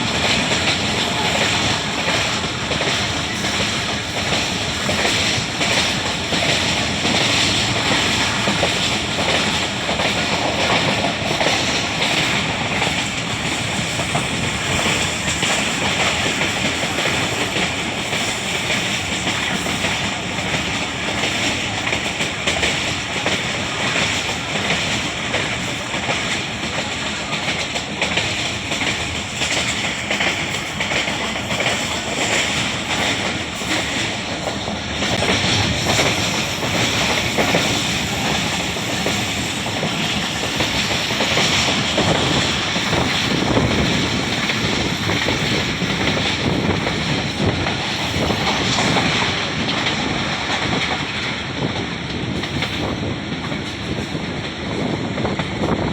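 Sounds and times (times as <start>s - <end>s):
train wheels on rails: 0.0s - 55.9s.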